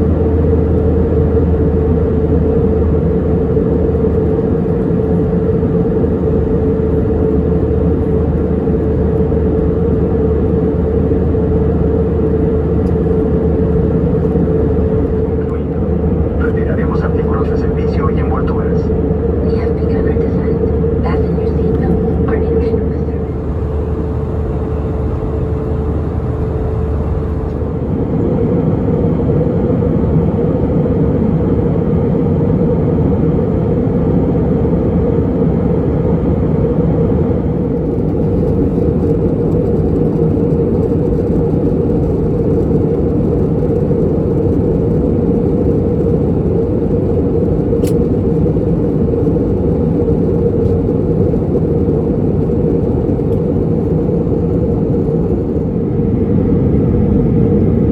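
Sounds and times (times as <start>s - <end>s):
airplane cabin engine drone: 0.0s - 57.9s.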